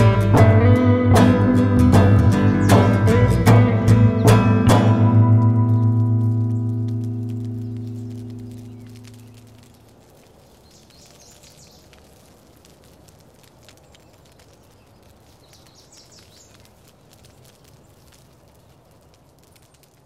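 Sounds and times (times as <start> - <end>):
faint outdoor ambience: 0.0 - 20.0
high bird chirping: 2.0 - 6.8, 7.5 - 9.8.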